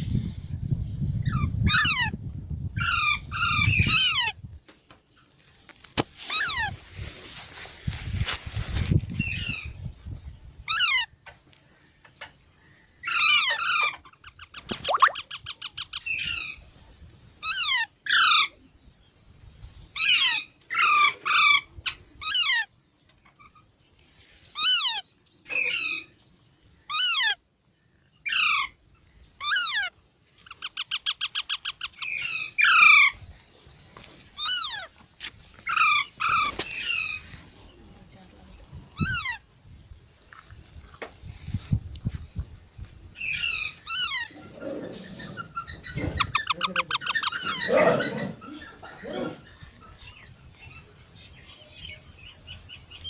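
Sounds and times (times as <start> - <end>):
parrots squawking: 13.0 - 16.5, 28.3 - 28.8, 29.4 - 29.9, 30.5 - 33.2, 34.4 - 34.9, 43.2 - 49.6
parrots chattering rapidly: 13.0 - 16.6, 34.4 - 34.9, 39.0 - 39.4, 43.2 - 50.3.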